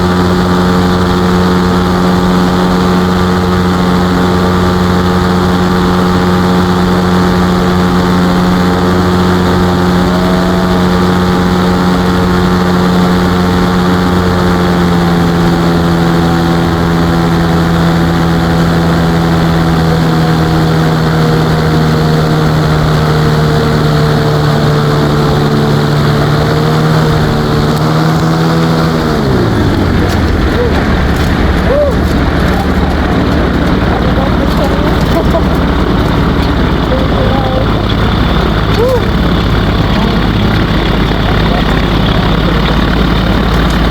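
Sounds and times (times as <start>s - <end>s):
ultralight aircraft engine droning: 0.0s - 43.9s.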